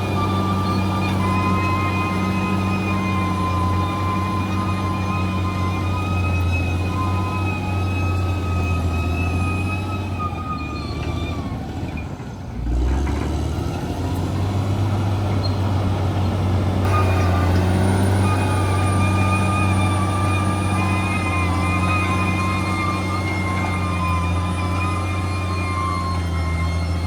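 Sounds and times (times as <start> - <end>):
bulldozer diesel engine running: 0.0 - 27.0
high-pitched whine: 16.8 - 27.0.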